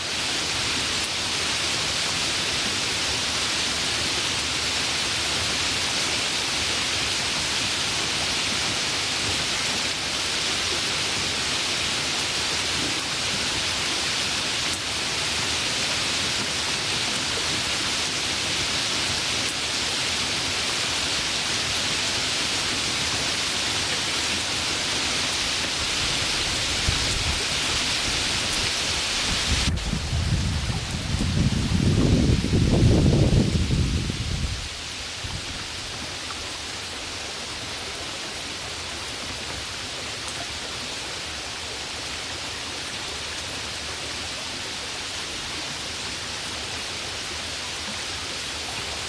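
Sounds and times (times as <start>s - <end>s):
heavy rain hissing: 0.0s - 49.0s
low rumble of thunder: 29.6s - 34.6s.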